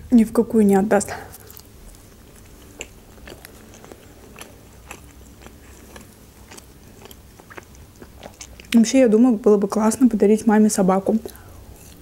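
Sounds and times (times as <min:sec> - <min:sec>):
person chewing food: 0:01.3 - 0:08.8, 0:11.2 - 0:12.0.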